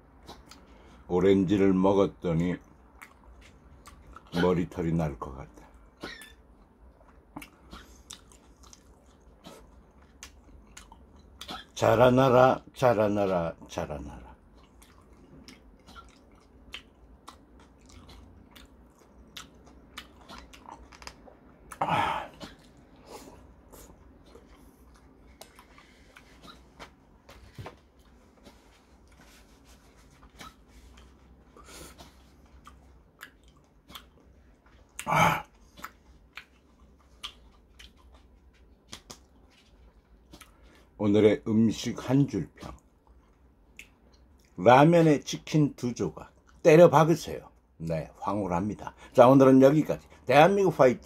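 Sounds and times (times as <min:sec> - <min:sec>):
person chewing: 0:02.6 - 0:04.6, 0:05.5 - 0:11.8, 0:14.4 - 0:40.9, 0:42.5 - 0:44.6.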